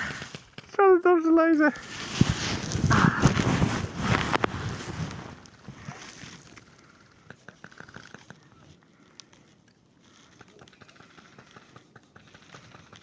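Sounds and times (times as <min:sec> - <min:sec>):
faint clicks and rustles: 0:00.0 - 0:13.0.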